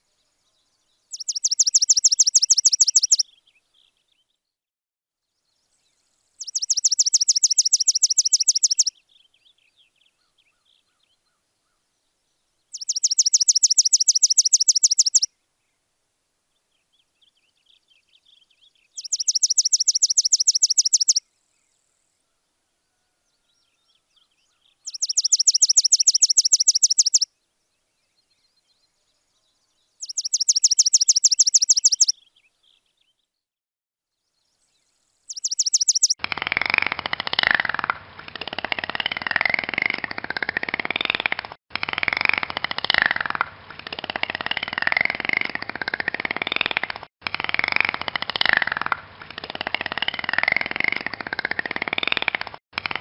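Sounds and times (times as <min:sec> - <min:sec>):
faint bird twittering: 0:01.1 - 0:03.2, 0:06.4 - 0:08.9, 0:12.7 - 0:15.3, 0:19.0 - 0:21.2, 0:24.5 - 0:27.3, 0:30.0 - 0:32.3, 0:35.3 - 0:36.2
bird high-pitched trill: 0:01.2 - 0:03.2, 0:06.4 - 0:08.9, 0:12.8 - 0:15.3, 0:19.0 - 0:21.2, 0:24.9 - 0:27.3, 0:30.0 - 0:32.2, 0:35.3 - 0:36.2.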